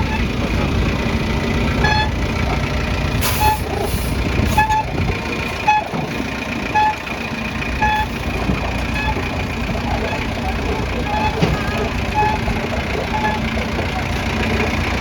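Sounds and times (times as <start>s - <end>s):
excavator diesel engine running: 0.0s - 15.0s
warning alarm short beeps: 7.8s - 8.2s, 11.0s - 13.5s.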